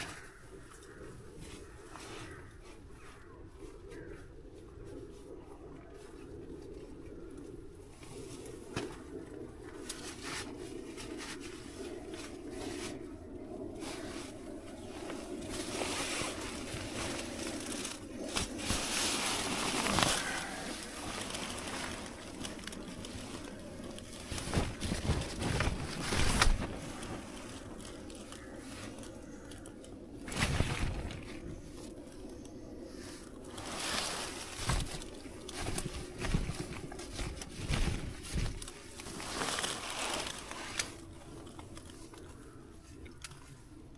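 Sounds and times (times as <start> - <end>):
low background hum: 0.0 - 43.9
rustling and bumping handling noise: 15.0 - 29.1, 33.6 - 42.3.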